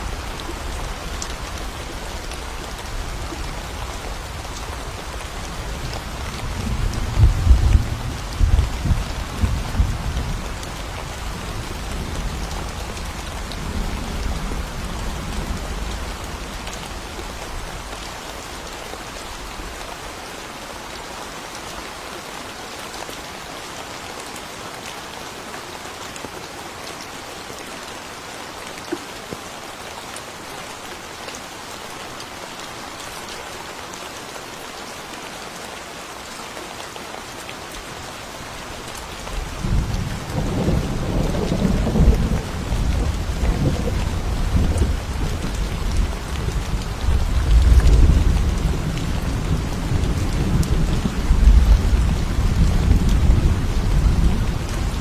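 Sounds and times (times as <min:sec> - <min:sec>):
steady rain falling: 0:00.0 - 0:55.0
rumble of thunder: 0:06.2 - 0:16.5, 0:39.4 - 0:55.0.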